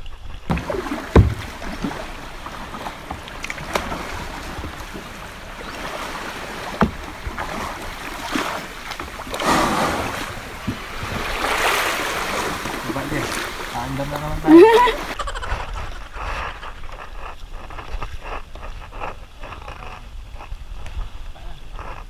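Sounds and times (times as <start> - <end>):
water sloshing against kayak hull: 0.1 - 22.0
sharp knocks: 0.5 - 4.0, 6.7 - 7.5
hull scraping onto sand: 0.5 - 20.5.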